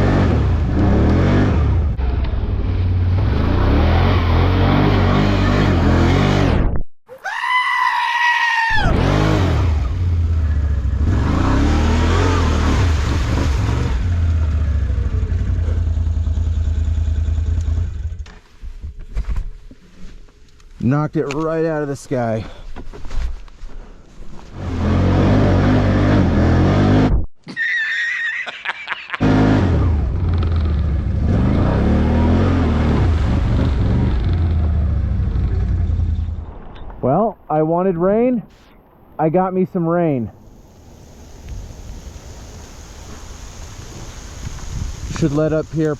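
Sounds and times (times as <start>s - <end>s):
off-road vehicle engine revving: 0.0s - 6.6s, 8.8s - 18.2s, 24.5s - 27.2s, 29.2s - 36.4s.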